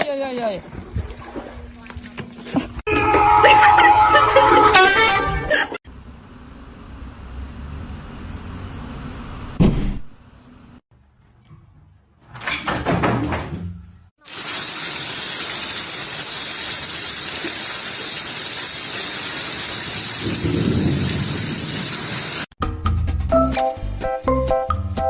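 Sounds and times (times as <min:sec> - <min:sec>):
knocks and rustling: 0:11.0 - 0:14.0
falling water rushing: 0:14.4 - 0:22.5.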